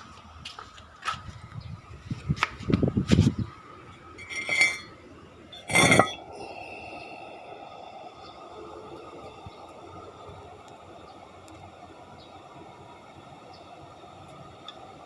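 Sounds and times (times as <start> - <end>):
hard objects clattering: 4.2 - 4.9, 5.6 - 6.2
ringing clinks: 4.2 - 4.9.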